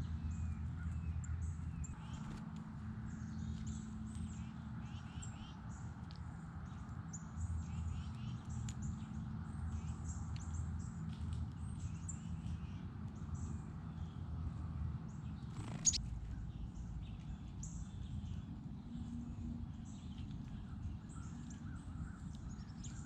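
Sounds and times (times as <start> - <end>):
small birds chirping: 0.0 - 14.3, 15.0 - 23.0.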